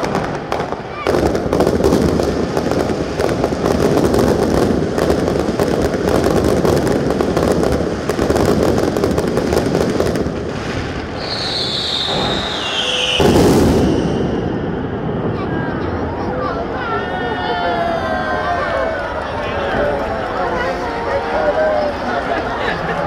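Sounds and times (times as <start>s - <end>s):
fireworks crackling and popping: 0.0s - 15.4s
firework whistle sliding down: 11.1s - 14.6s.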